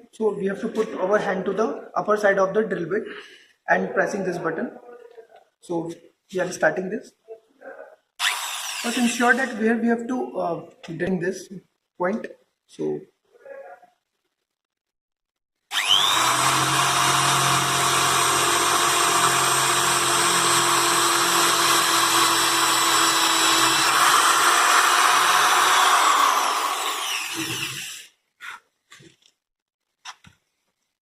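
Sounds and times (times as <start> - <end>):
electric drill boring into wood: 8.2 - 9.6, 15.7 - 28.1.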